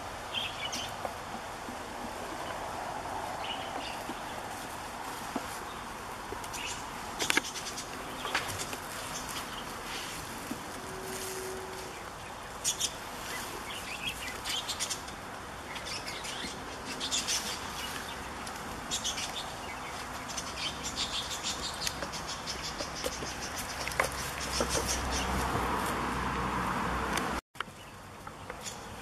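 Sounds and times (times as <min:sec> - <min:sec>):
small birds chirping: 0:00.3 - 0:01.2, 0:03.3 - 0:10.2, 0:11.8 - 0:25.5, 0:27.6 - 0:29.0.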